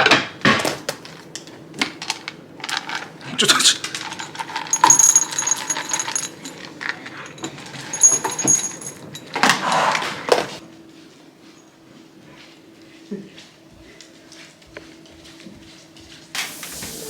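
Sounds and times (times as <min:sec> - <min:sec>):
metal jingling and rattling: 0:02.7 - 0:10.4
metal clatter: 0:03.8 - 0:09.6.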